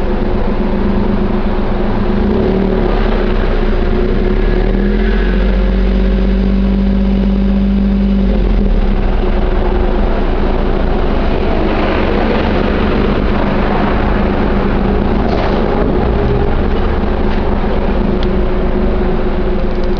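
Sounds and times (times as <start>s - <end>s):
car engine exhaust idling: 0.0s - 19.9s.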